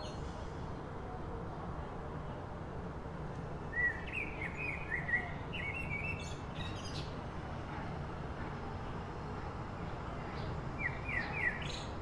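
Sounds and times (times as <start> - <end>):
songbird singing: 3.7 - 7.2, 10.4 - 12.0.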